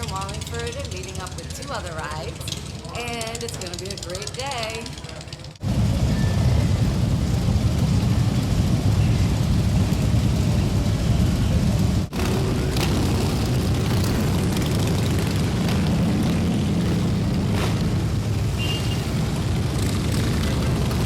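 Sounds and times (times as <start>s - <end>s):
motorcycle engines rumbling: 0.0s - 21.0s.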